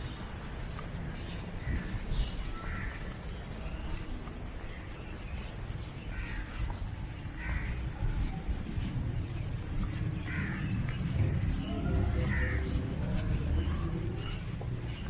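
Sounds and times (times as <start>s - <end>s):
crows cawing: 2.5s - 3.2s, 6.1s - 8.1s, 9.8s - 14.4s.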